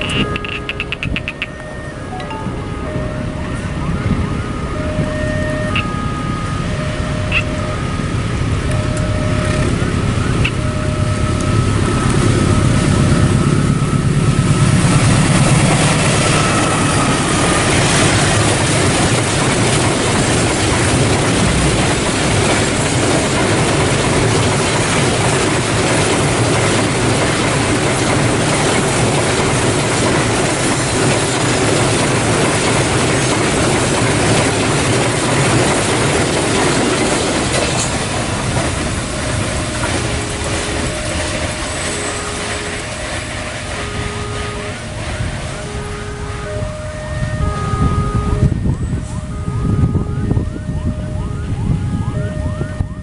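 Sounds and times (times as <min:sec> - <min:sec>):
thin whine: 0:00.0 - 0:25.8, 0:37.4 - 0:52.2
locomotive engine rumble: 0:00.0 - 0:53.0
wagons clattering over rails: 0:08.2 - 0:47.5.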